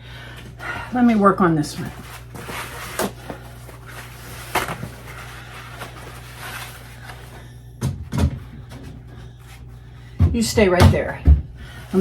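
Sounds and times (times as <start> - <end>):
steady low hum: 0.0 - 12.0
shelf being scrubbed: 1.0 - 7.3.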